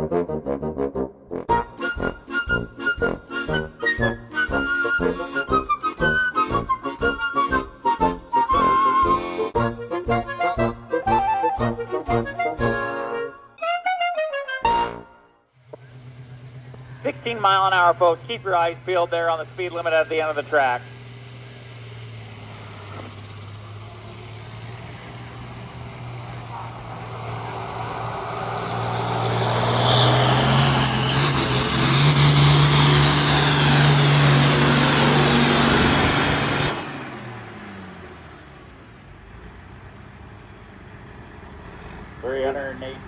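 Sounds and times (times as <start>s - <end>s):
tractor diesel engine at full throttle: 16.0s - 43.0s.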